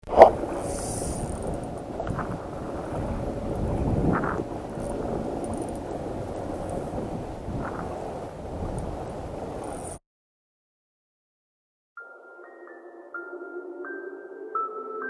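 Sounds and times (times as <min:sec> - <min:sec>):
wind buffeting microphone: 0:00.1 - 0:10.0.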